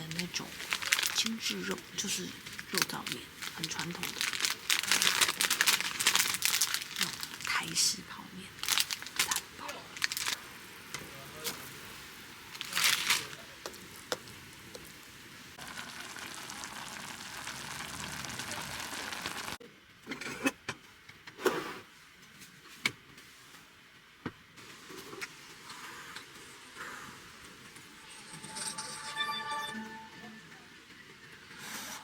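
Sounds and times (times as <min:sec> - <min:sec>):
steady hiss of stove: 0:06.8 - 0:19.6, 0:21.1 - 0:28.0.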